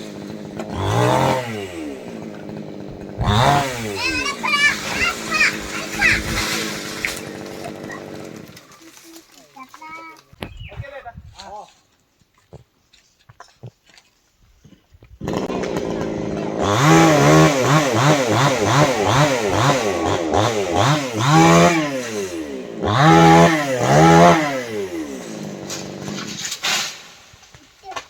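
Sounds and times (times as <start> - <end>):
chainsaw revving: 0.0 - 9.4, 15.2 - 27.5.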